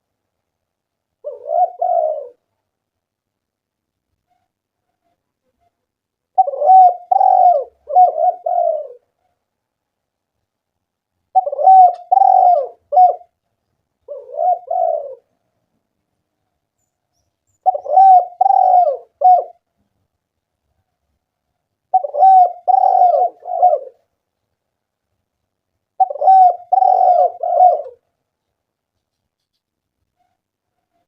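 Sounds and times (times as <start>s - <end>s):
dove cooing: 1.2s - 2.5s, 6.3s - 9.2s, 11.3s - 13.4s, 14.0s - 15.3s, 17.6s - 19.7s, 21.9s - 24.1s, 26.0s - 28.0s.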